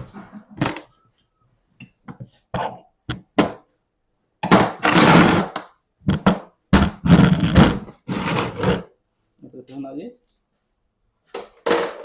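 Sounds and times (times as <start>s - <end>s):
rushing scraping noise: 7.0s - 8.8s.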